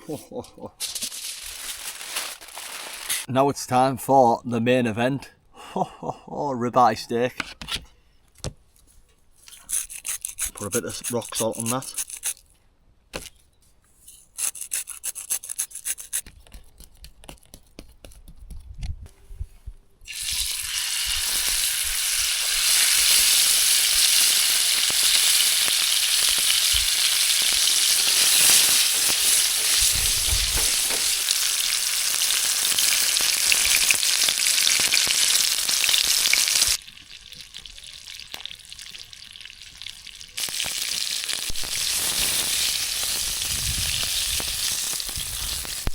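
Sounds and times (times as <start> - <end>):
steak sizzling in a pan: 20.1 - 39.0, 39.6 - 45.9.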